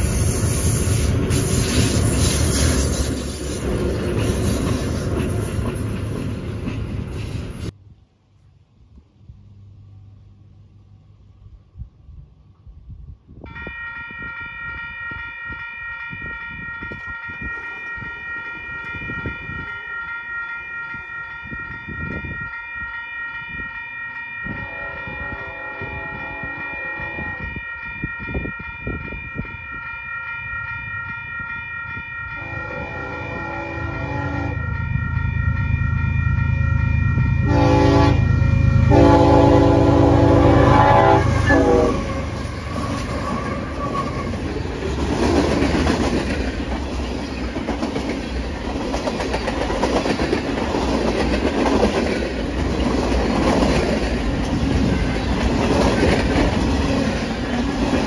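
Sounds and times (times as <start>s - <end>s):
wheels clacking on rail joints: 0.0s - 7.8s, 42.3s - 58.0s
train horn blasts: 13.5s - 20.8s, 24.4s - 27.6s, 32.3s - 34.8s, 36.6s - 44.4s
crossing bells ringing: 13.5s - 45.1s, 45.7s - 58.0s
locomotive engine drone: 28.3s - 45.1s.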